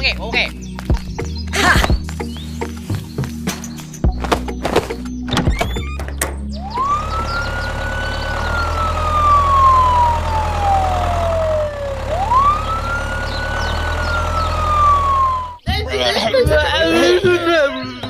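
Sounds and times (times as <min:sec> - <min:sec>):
siren wailing: 0:06.6 - 0:15.6.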